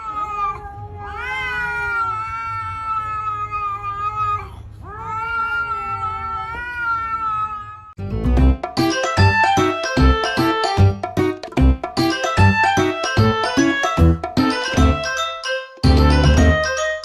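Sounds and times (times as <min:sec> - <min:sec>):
cat yowling: 0:00.0 - 0:08.0, 0:13.6 - 0:14.0.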